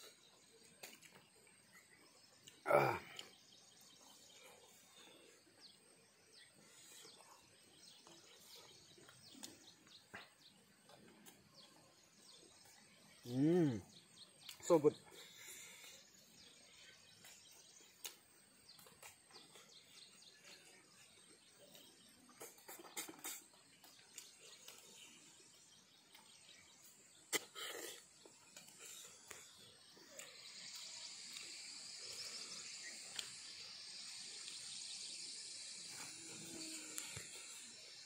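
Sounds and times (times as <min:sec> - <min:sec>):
insects chirring: 0:00.0 - 0:38.0
chewing and lip smacks: 0:32.8 - 0:33.5.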